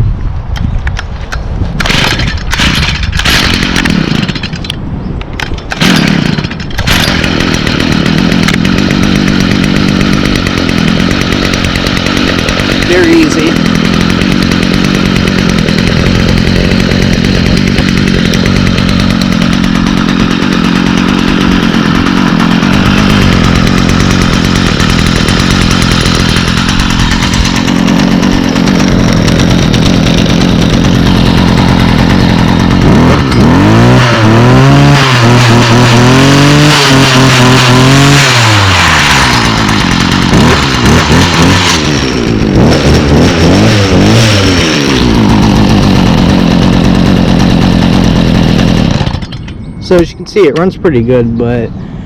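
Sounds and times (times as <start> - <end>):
string trimmer engine idling and revving: 1.8 - 4.8, 5.4 - 51.6.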